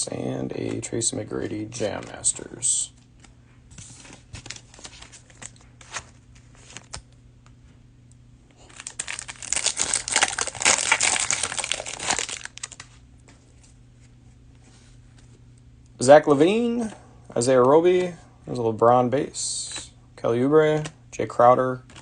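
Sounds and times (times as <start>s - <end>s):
cellophane wrapper crinkling: 8.6s - 13.0s.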